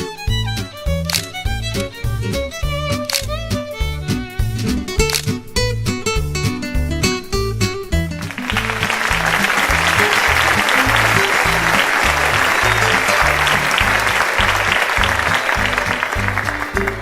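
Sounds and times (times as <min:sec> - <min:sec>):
upbeat music with plucked bass: 0:00.0 - 0:17.0
audience clapping: 0:08.2 - 0:17.0.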